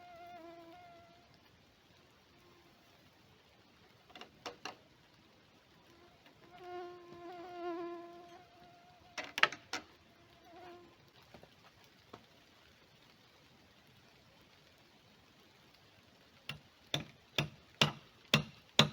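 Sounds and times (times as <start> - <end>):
flying insect buzzing: 0.0 - 1.2, 5.9 - 9.4, 10.2 - 11.0.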